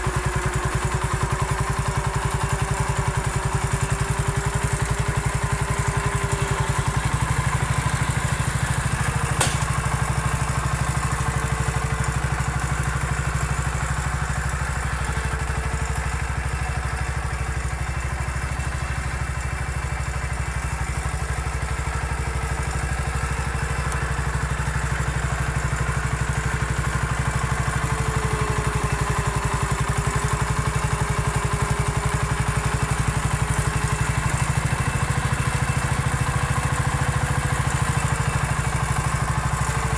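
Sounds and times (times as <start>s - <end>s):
garden tractor engine running: 0.0s - 39.9s
sharp click: 9.4s - 10.0s.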